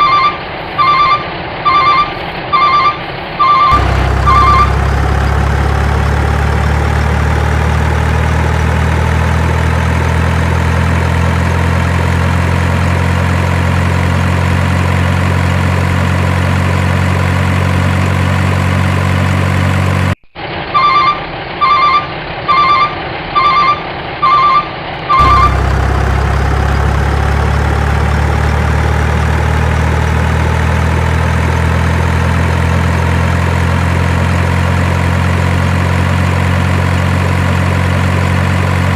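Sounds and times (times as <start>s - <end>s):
reversing alarm beeping: 0.0s - 10.7s, 20.8s - 31.4s
truck engine idling: 2.6s - 20.6s, 21.6s - 38.9s.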